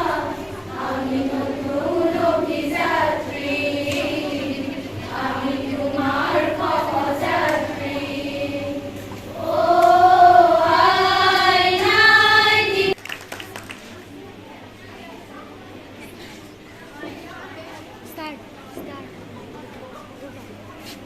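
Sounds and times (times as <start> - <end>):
group singing in unison: 0.0 - 13.0.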